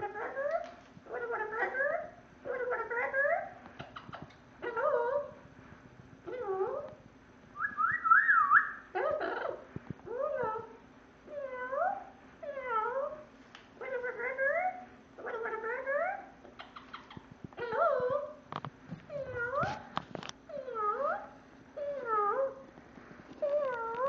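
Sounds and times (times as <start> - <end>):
parrot whistled call: 7.6 - 9.6.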